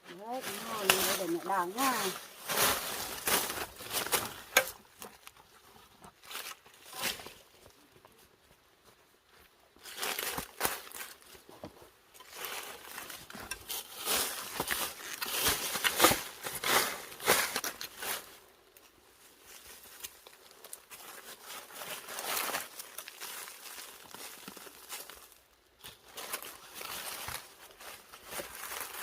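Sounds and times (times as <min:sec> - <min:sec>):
plants rustling: 0:00.0 - 0:29.0.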